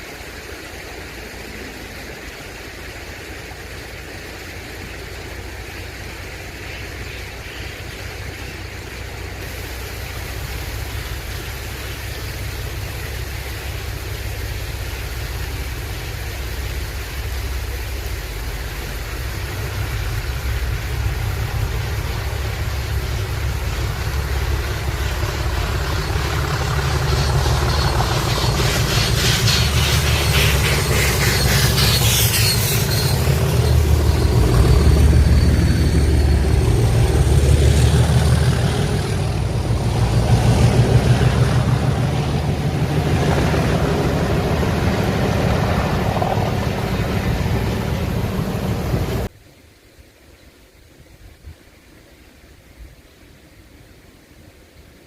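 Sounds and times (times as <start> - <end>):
train low rumble: 0.0 - 49.4
train clatter: 18.1 - 49.3.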